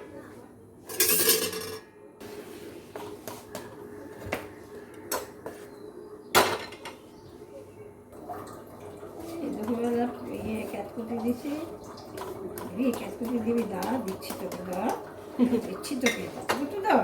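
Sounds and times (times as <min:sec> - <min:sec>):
kitchen utensils knocking and clinking: 0:00.9 - 0:01.9, 0:06.3 - 0:07.0, 0:12.2 - 0:17.0.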